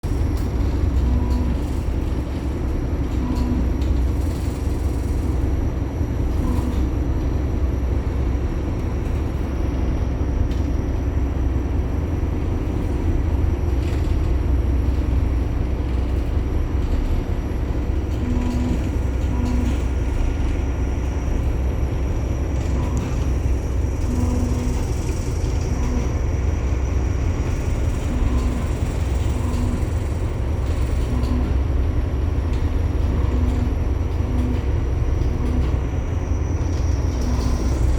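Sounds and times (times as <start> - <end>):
low rumble of vessel: 0.0 - 37.9
ship structure creaking and squeaking: 8.8 - 37.9.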